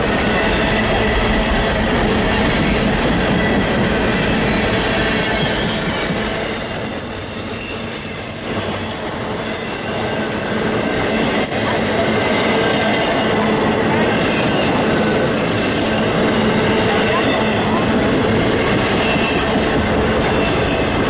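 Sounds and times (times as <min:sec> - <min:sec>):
train rumbling past: 0:00.0 - 0:21.0
high-pitched wheel squeal: 0:04.0 - 0:10.6.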